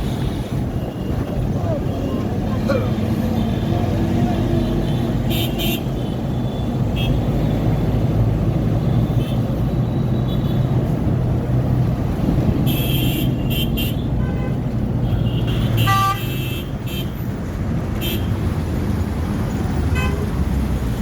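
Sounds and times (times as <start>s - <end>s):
road traffic rumble: 0.0s - 21.0s
car horn toots: 12.6s - 17.2s.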